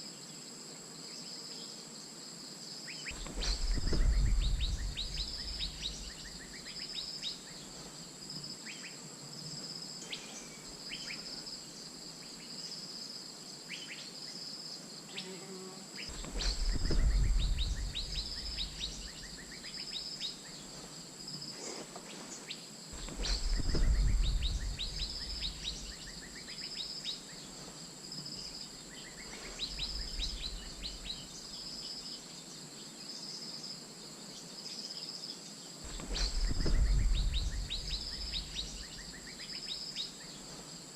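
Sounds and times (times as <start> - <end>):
high insect buzz: 0.0 - 40.9
loud low rumbles: 3.2 - 6.4, 16.2 - 19.1, 23.3 - 25.9, 36.3 - 38.8.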